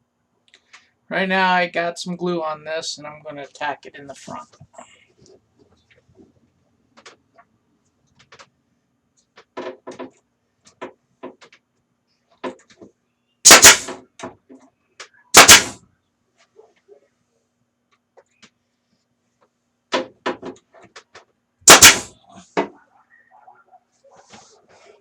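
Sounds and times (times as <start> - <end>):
pneumatic nail gun shots: 13.4 - 14.0, 15.3 - 15.8, 21.7 - 22.2.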